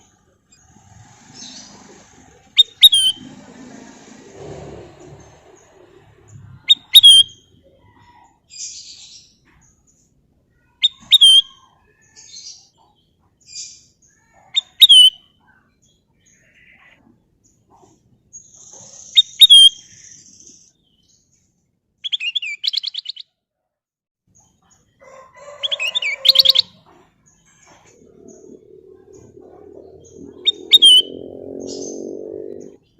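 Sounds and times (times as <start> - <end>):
soft rasping chirps: 25.8 - 32.9
bulbul whistling phrase: 28.4 - 32.1.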